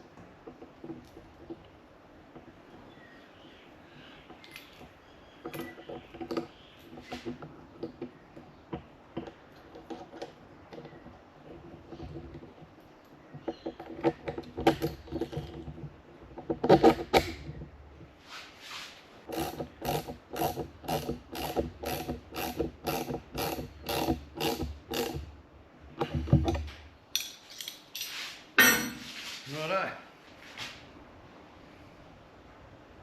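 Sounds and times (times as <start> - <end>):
ratchet wrench clicking: 19.3 - 25.2.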